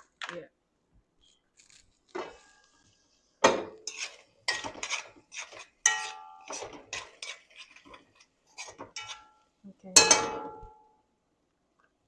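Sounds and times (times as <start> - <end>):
utensils clinking against pots: 3.5 - 8.0, 8.6 - 9.4, 10.0 - 10.8.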